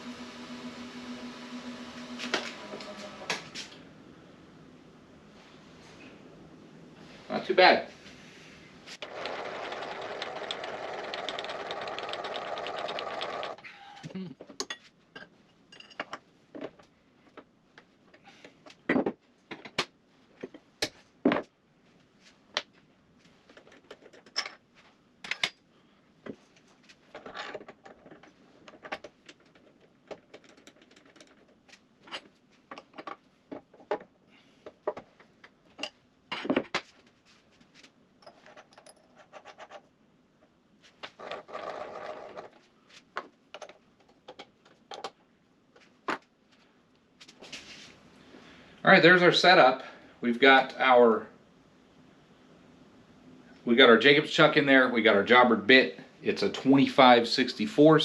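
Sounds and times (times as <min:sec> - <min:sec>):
small machine rattling: 0:09.0 - 0:13.6.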